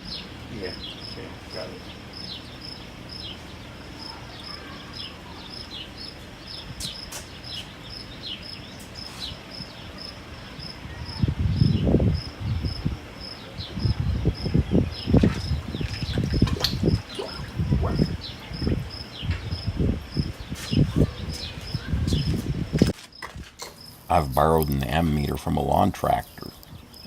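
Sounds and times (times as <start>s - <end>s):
crickets chirping: 0.0s - 25.2s
low thumps and rumbling: 13.7s - 23.0s.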